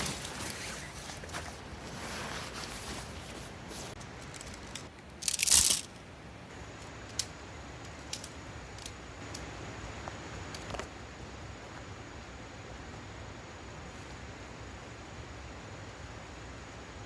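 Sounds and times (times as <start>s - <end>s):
tent fabric crunching rustle: 0.0s - 4.0s.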